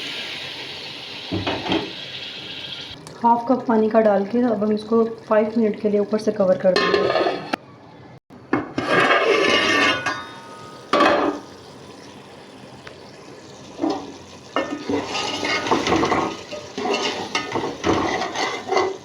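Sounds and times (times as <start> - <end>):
spoon stirring in a pot: 14.6 - 19.0.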